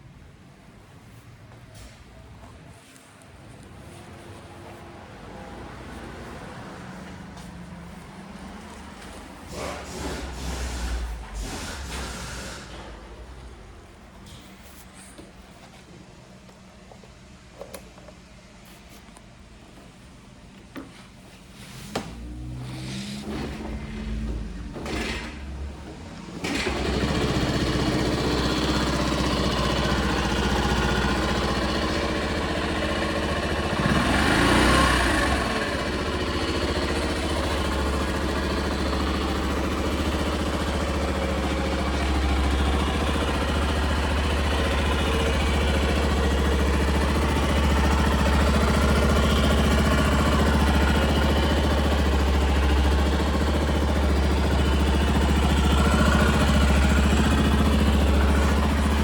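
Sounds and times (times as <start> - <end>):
motorcycle engine starting and idling: 3.5 - 15.8, 21.6 - 59.0
engine revving: 22.0 - 59.0.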